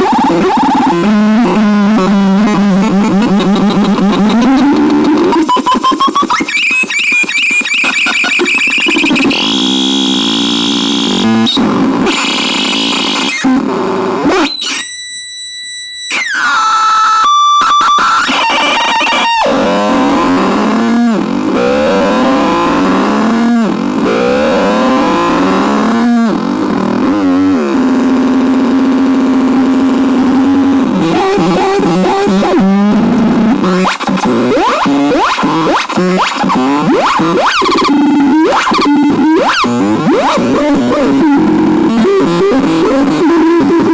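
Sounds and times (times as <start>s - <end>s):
synthesizer distorted noise tones: 0.0s - 43.9s.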